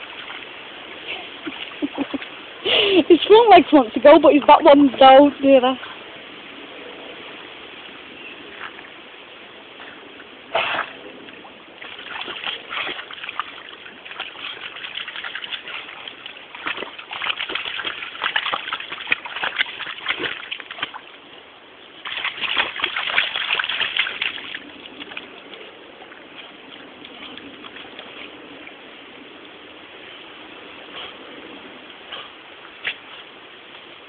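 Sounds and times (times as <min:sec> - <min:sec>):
dog splashing in water: 0:00.0 - 0:03.7, 0:10.4 - 0:28.8.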